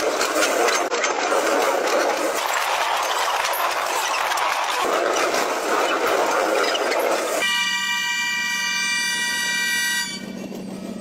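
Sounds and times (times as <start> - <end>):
freight wagon wheels rattling: 0.0 - 7.4
locomotive horn chord: 7.4 - 10.4.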